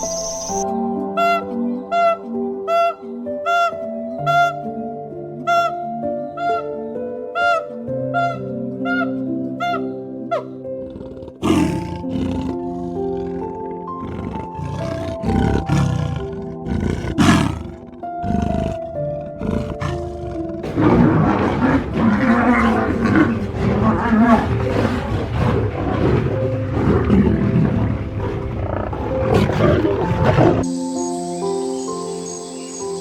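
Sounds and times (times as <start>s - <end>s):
soft piano music: 0.0s - 33.0s
lion roaring and growling: 10.8s - 30.7s.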